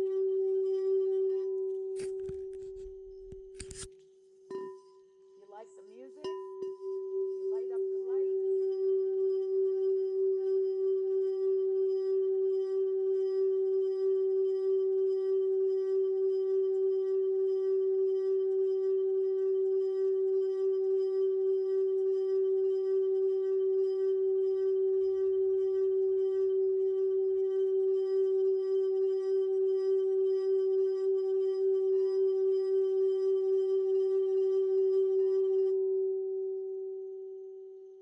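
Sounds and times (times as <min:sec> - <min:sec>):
singing bowl ringing: 0:04.5 - 0:37.9.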